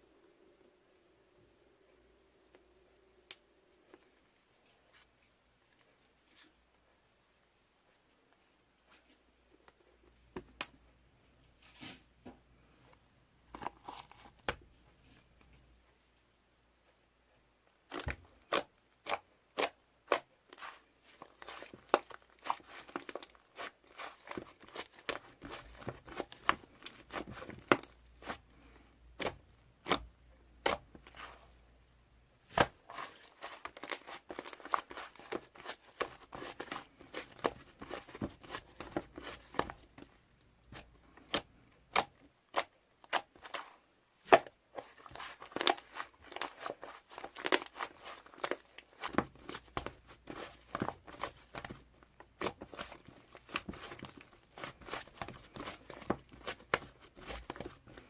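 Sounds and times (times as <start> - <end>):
packaging crinkling and rustling: 32.8 - 40.1, 44.8 - 58.0.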